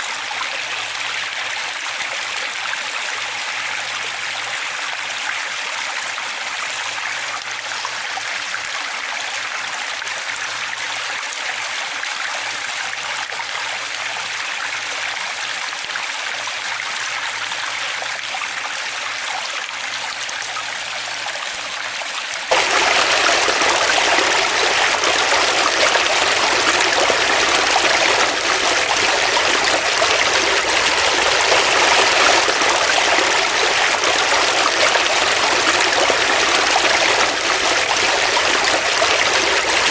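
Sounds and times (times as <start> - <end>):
stream water rushing: 22.5 - 39.9.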